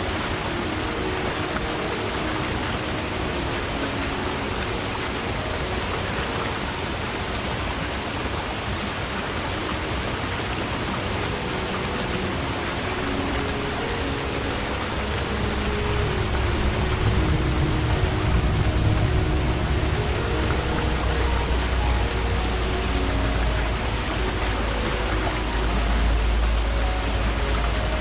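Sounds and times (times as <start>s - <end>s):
stream water rushing: 0.0s - 28.0s
low rumble: 14.9s - 28.0s.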